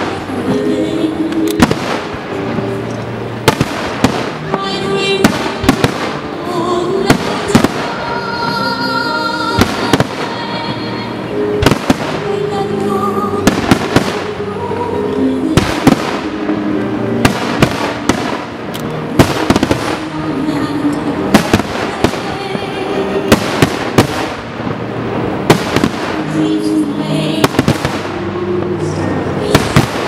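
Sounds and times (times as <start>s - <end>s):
music playing: 0.0s - 30.0s
firework shells booming: 5.2s - 6.2s, 19.2s - 20.1s.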